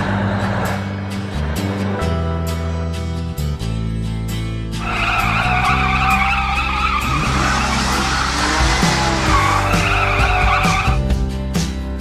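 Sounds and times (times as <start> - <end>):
background music: 0.0 - 12.0
tyres squealing: 4.8 - 11.0.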